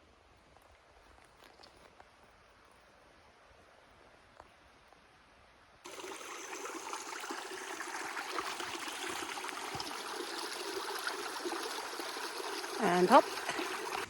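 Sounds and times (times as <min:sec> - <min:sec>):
stream running: 0:05.8 - 0:14.0.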